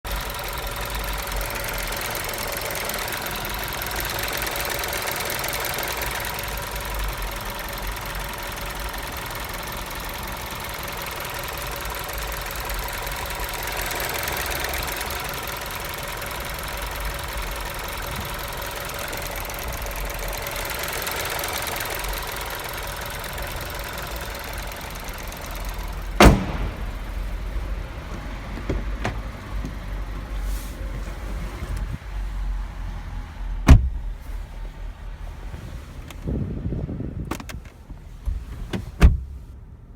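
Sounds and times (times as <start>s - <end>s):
car engine idling: 0.1s - 39.9s
sharp engine knock: 26.2s - 27.7s.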